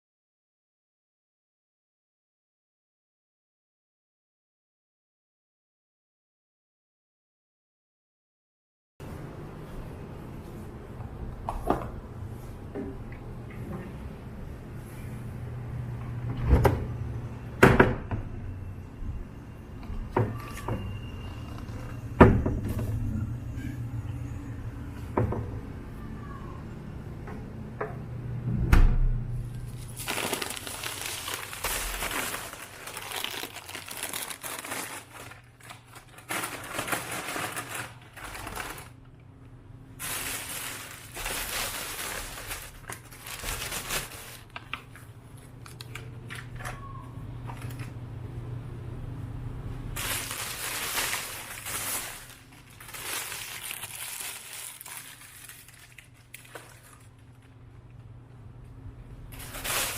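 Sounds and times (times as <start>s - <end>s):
low hum: 20.8s - 33.0s
material rustling and crinkling: 29.7s - 39.0s, 40.0s - 45.0s, 50.0s - 57.1s, 59.3s - 59.9s.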